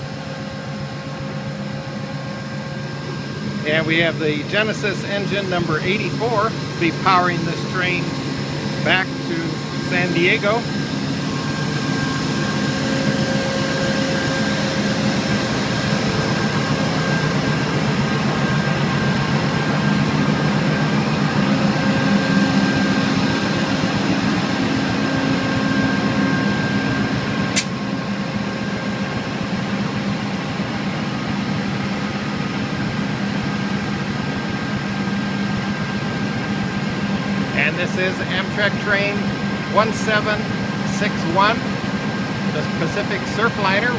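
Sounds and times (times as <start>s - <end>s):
diesel locomotive engine drone: 0.0s - 43.9s
sharp click: 27.6s - 27.8s.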